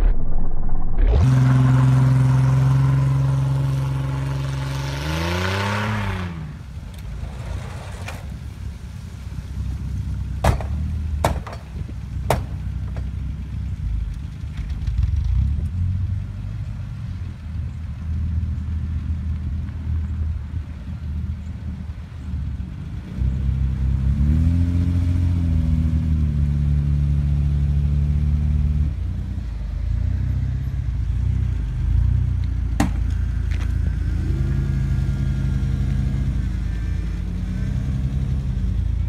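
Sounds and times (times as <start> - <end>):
vehicle engine revving: 1.1 - 8.7, 22.9 - 39.0.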